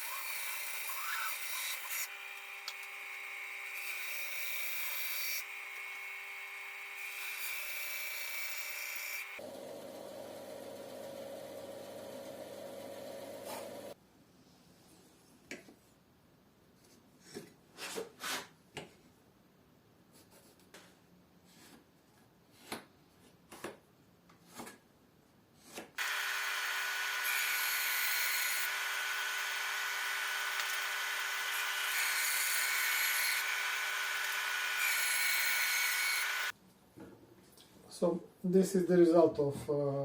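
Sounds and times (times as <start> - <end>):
power saw cutting wood: 0.0 - 9.5, 26.0 - 36.6.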